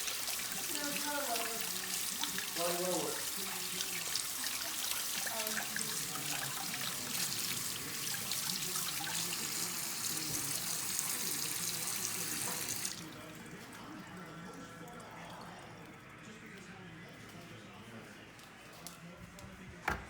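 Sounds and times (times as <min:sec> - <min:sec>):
tap water splashing into sink: 0:00.0 - 0:13.2.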